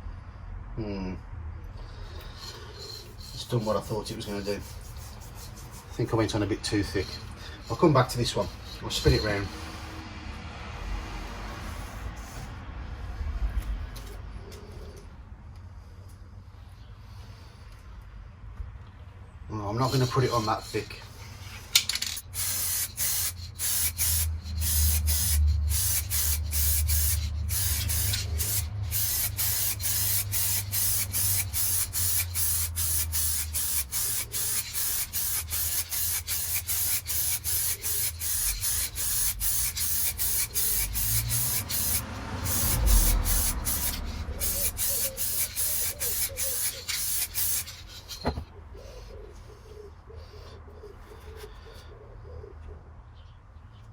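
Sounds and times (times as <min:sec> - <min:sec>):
spray gun hissing: 0:02.4 - 0:10.0, 0:19.8 - 0:21.4, 0:22.2 - 0:48.4.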